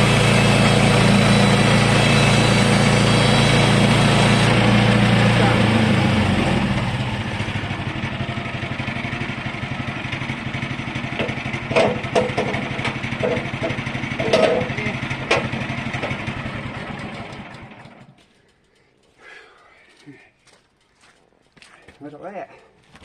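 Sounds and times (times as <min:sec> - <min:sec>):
petrol engine running: 0:00.0 - 0:18.6
sharp knocks: 0:11.2 - 0:16.2.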